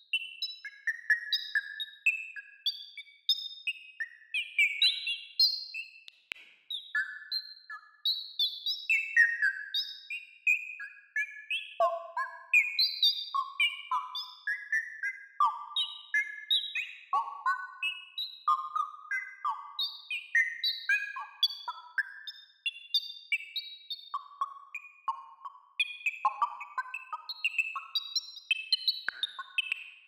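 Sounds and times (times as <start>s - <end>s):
synthesized bird-like chirps: 11.8s - 30.0s.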